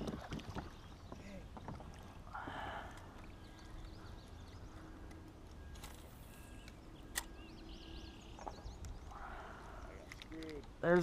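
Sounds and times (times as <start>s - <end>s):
faint bird chirps: 3.2s - 10.2s
sharp click: 6.6s - 7.3s.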